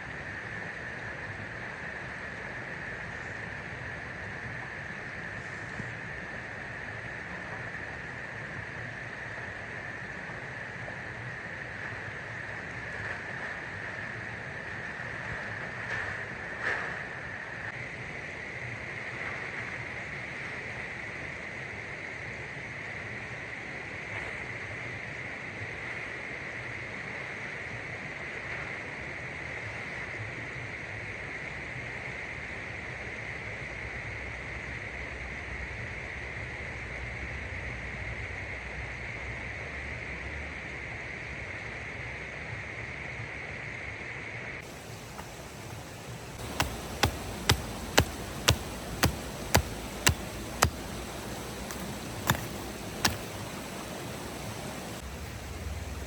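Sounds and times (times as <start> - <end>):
stream flowing: 44.6 - 56.0.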